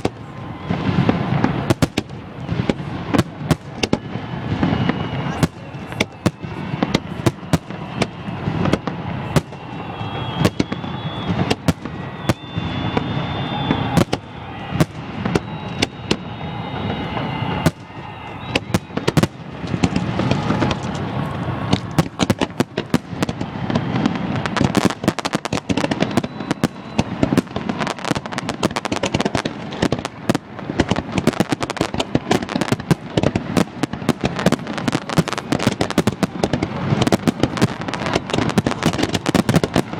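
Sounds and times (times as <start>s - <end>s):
firework bangs and crackles: 0.0s - 39.9s
firework whistling: 0.0s - 39.9s.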